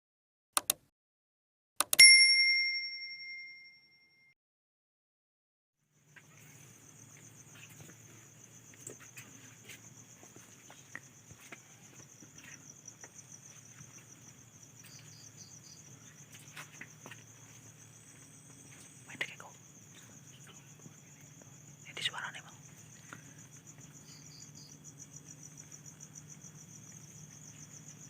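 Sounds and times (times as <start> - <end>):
crickets trilling: 6.0 - 28.0.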